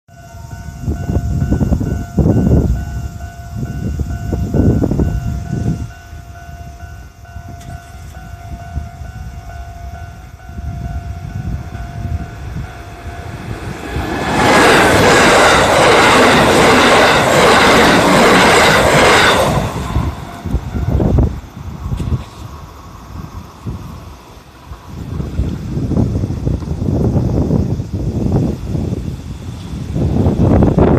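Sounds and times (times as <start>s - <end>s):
level-crossing warning bell: 0.1s - 21.4s
wind rumble on microphone: 0.3s - 30.9s.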